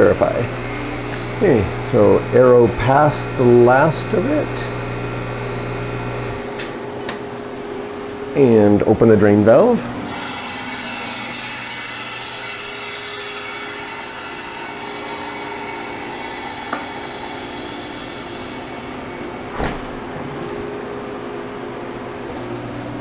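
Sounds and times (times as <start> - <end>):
steady machine hum: 0.0 - 23.0
air hissing into vacuum chamber: 10.1 - 20.2
door thump pulled off seal: 19.5 - 20.0.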